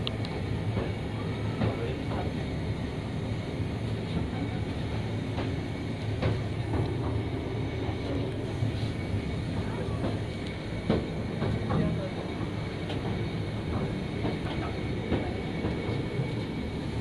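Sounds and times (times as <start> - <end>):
train hum and rumble: 0.0 - 17.0.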